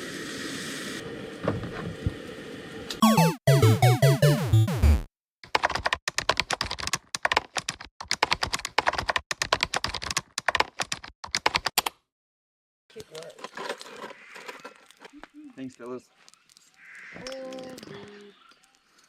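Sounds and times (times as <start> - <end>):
falling electronic tone: 3.0 - 5.1
fast sharp clicks: 5.5 - 11.9.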